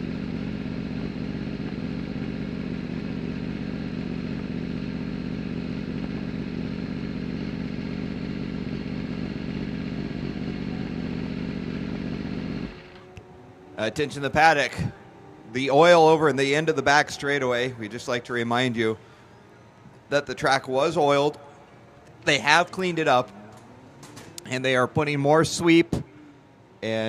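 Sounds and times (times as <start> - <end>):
motorbike engine running: 0.0 - 17.4.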